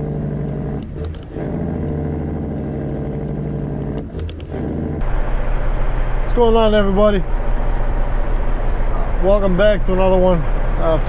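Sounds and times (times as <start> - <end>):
diesel engine running: 0.0 - 11.0
clicks: 2.8 - 4.7.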